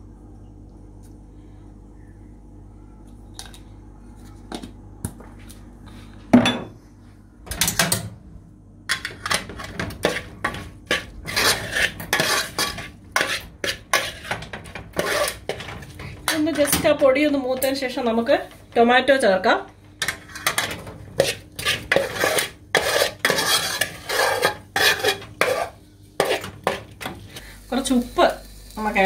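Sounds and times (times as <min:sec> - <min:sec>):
metal spoon scraping a pot: 0:08.9 - 0:17.8, 0:20.0 - 0:26.8.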